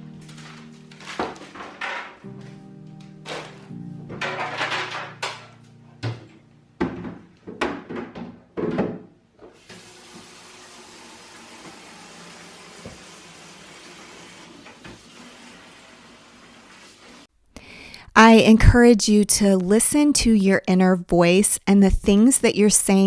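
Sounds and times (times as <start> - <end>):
sharp knocks and clatters: 0.3 - 2.6, 3.3 - 9.1.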